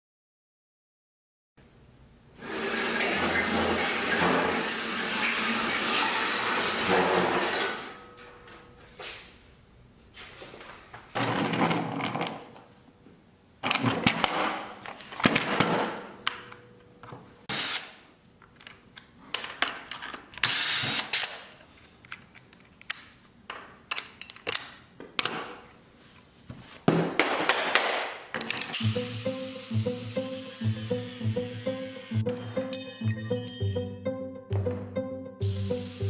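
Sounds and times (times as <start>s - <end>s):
power tool bursts: 17.5s - 18.0s, 20.4s - 21.4s, 28.7s - 32.2s, 35.4s - 36.0s.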